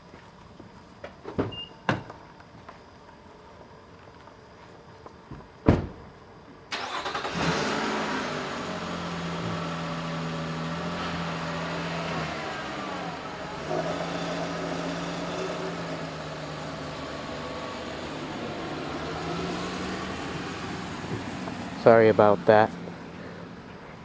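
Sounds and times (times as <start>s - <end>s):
car engine humming: 6.7s - 24.0s.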